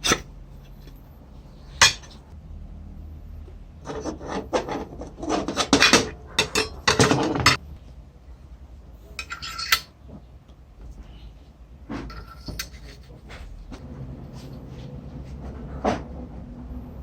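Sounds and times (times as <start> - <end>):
metal parts clinking and scraping: 0.0 - 2.2, 3.8 - 7.6, 9.1 - 9.9, 12.1 - 13.2
ringing metal scrape: 3.9 - 7.6, 9.1 - 9.9.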